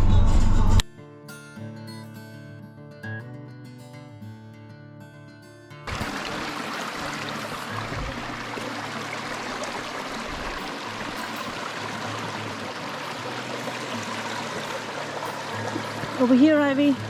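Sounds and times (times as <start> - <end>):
creek water rushing: 5.9 - 17.0.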